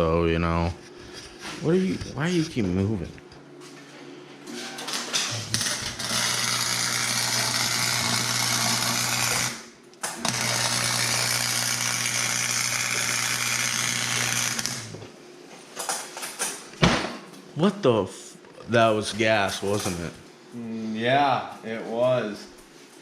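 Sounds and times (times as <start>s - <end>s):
arc welding crackling hiss: 4.9s - 15.0s.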